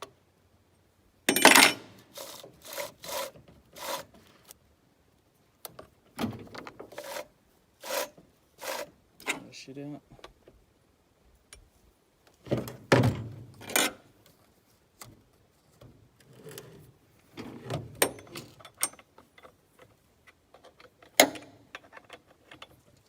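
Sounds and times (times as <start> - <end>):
metal parts clinking and scraping: 1.3 - 4.0.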